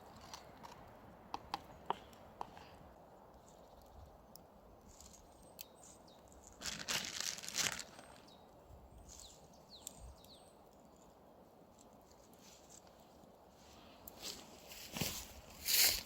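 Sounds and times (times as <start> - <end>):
rustling crackling handling noise: 4.9 - 8.3, 14.0 - 16.0.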